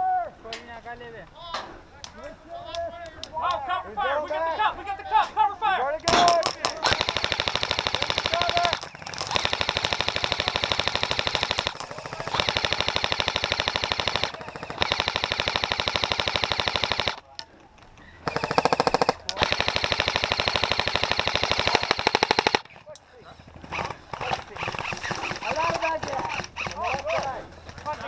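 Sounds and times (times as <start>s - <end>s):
airsoft gun firing full auto: 6.1s - 17.3s, 18.2s - 22.8s, 23.7s - 28.0s.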